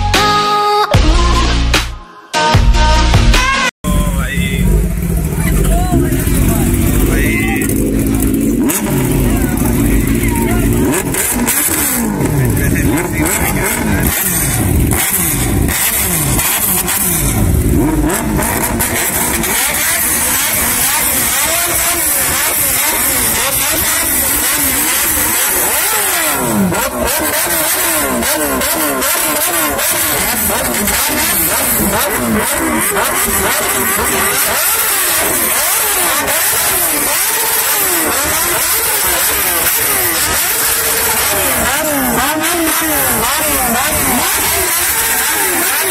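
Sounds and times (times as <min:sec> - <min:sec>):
motorcycle engines revving: 0:03.9 - 0:45.9.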